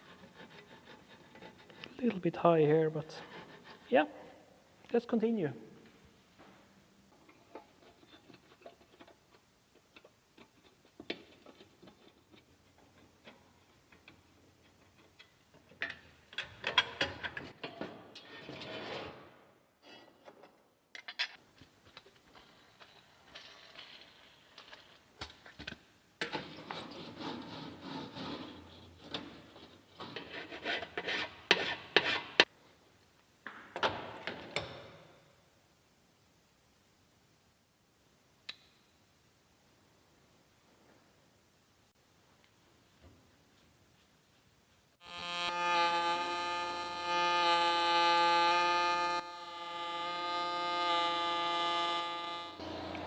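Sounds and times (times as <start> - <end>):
rubbing and scraping: 0.0 - 2.2, 3.0 - 3.9, 30.0 - 32.5.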